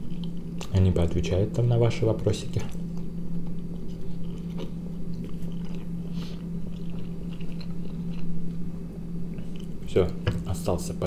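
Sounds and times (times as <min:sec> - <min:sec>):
person chewing: 0:00.0 - 0:00.7, 0:02.7 - 0:08.7, 0:09.3 - 0:09.8
steady low hum: 0:00.0 - 0:11.0.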